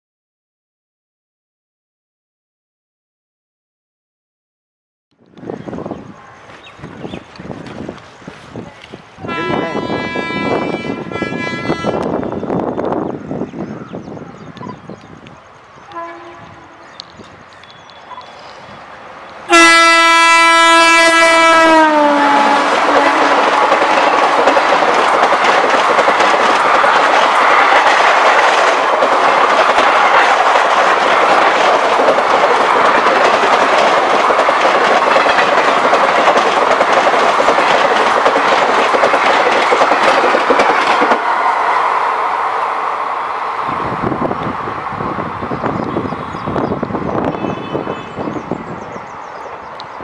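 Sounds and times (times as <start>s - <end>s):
train wheels clattering on track: 20.9s - 41.4s.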